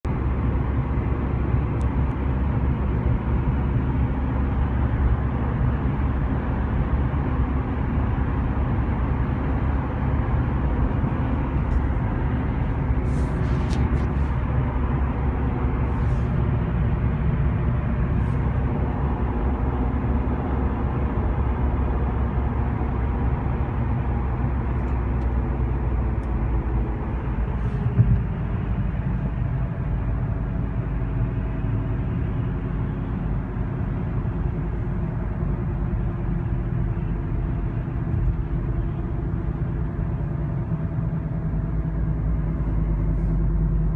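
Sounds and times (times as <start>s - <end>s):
car road rumble: 0.0s - 43.9s.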